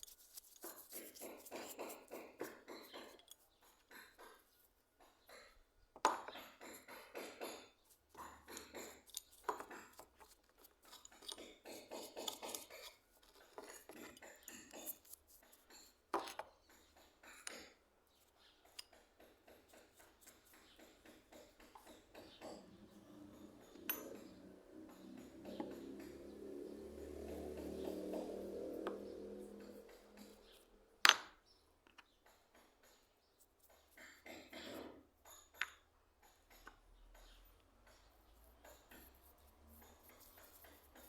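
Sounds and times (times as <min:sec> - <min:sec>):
metal hand plane clinking: 0:06.2 - 0:17.8, 0:18.7 - 0:26.3.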